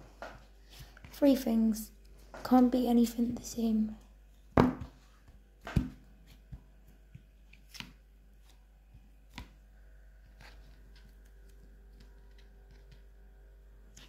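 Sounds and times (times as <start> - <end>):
clay knocking on a hard surface: 4.6 - 5.0.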